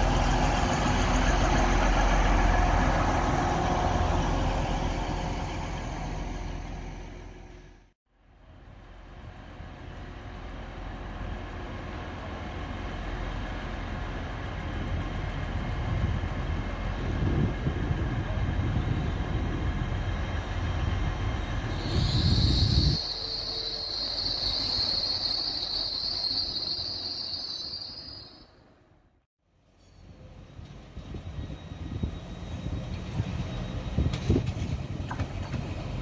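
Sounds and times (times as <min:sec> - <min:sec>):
train rumbling: 0:00.0 - 0:29.0, 0:29.7 - 0:36.0
high-pitched brake squeal: 0:21.7 - 0:28.6, 0:29.8 - 0:34.4.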